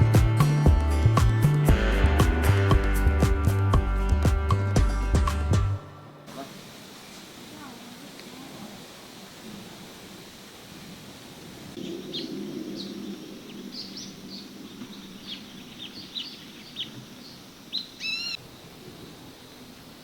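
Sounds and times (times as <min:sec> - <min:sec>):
birds chirping: 0:04.9 - 0:07.9, 0:11.8 - 0:18.4.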